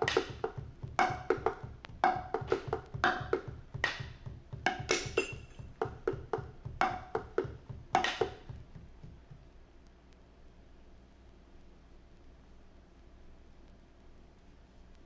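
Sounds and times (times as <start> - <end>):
struck percussion hits: 0.0 - 9.4
faint hiss: 0.0 - 15.0.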